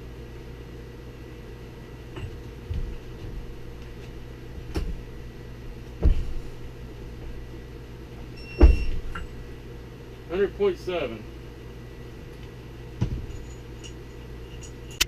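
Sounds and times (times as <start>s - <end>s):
steady low hum: 0.0s - 15.0s
metal parts and tools clunking: 13.0s - 15.0s.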